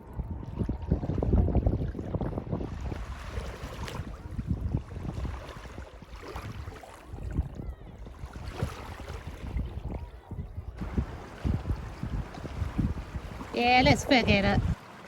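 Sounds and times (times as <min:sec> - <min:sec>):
wind gusting on microphone: 0:00.0 - 0:14.8
surf washing: 0:10.8 - 0:15.0.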